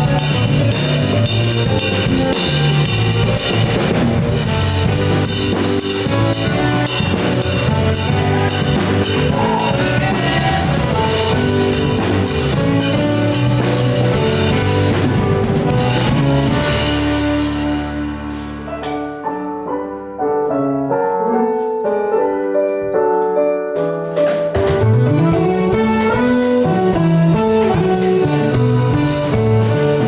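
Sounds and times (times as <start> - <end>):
saxophone: 0.0 - 17.3, 24.8 - 30.0
bass: 0.0 - 30.0
drum kit with busy cymbals: 0.0 - 30.0
guitar: 0.0 - 30.0
piano: 0.0 - 30.0.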